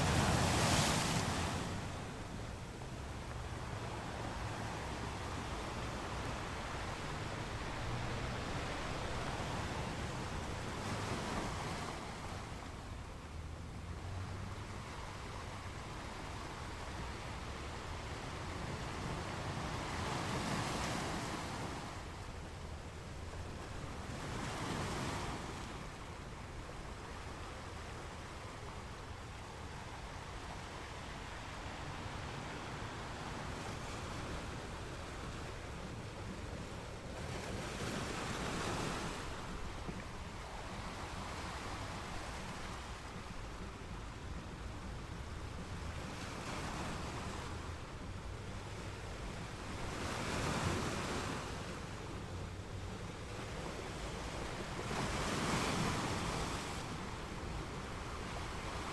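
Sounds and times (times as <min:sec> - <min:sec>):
waves crashing: 0:00.0 - 0:17.0, 0:26.9 - 0:44.0
surf washing on shore: 0:00.0 - 0:58.9.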